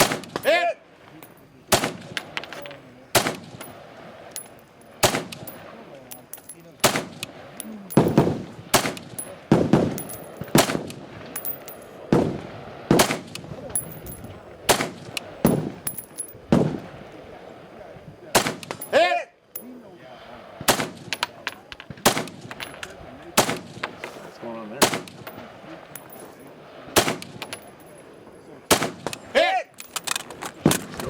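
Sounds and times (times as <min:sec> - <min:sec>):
rifle shots: 0:00.0 - 0:00.6, 0:01.7 - 0:15.9, 0:16.5 - 0:16.9, 0:18.3 - 0:19.0, 0:20.6 - 0:24.0, 0:24.8 - 0:26.2, 0:26.9 - 0:27.7, 0:28.7 - 0:29.3.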